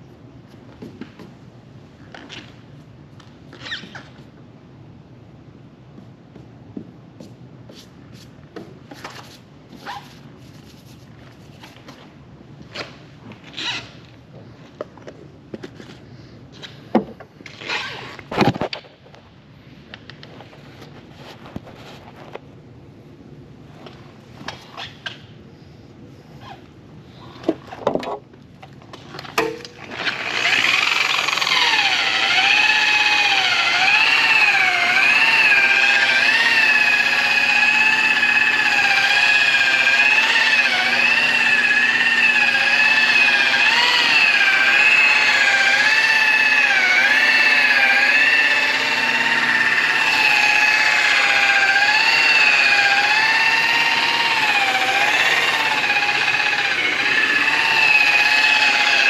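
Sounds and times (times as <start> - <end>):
power polisher motor whine: 30.0 - 59.0.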